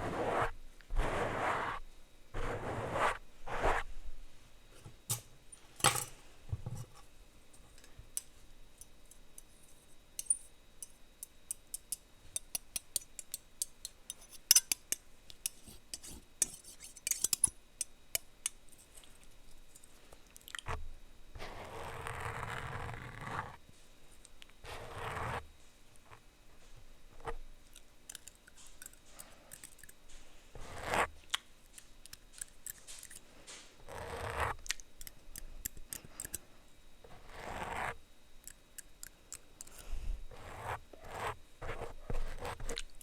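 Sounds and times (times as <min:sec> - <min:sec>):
plastic utensils sweeping microphone: 0:02.4 - 0:03.9.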